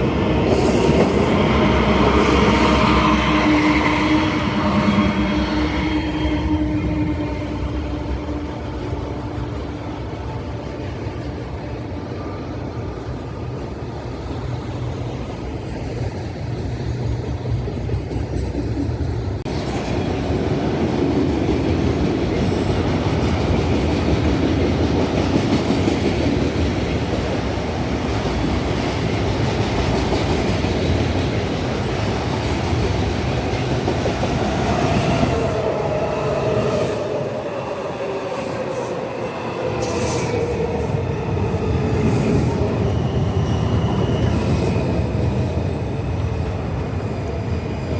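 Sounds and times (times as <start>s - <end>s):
train rumbling on track: 0.0s - 47.9s
train braking whine: 33.8s - 46.6s.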